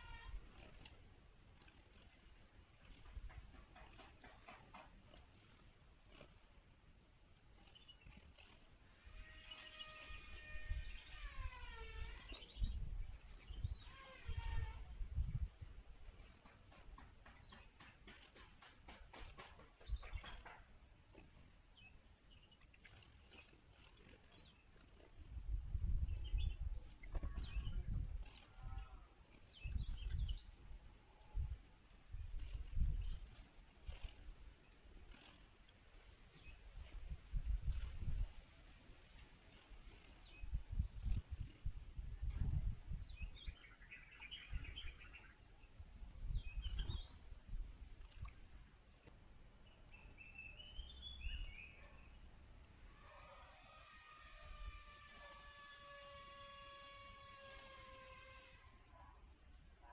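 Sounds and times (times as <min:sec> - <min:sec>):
birds chirping: 0:00.0 - 0:59.9
wind buffeting microphone: 0:07.7 - 0:48.9, 0:49.9 - 0:51.8.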